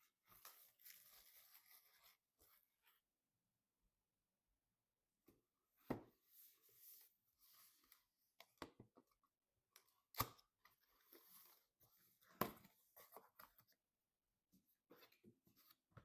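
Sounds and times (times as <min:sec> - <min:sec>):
soft rustling of packaging: 0:00.1 - 0:03.0.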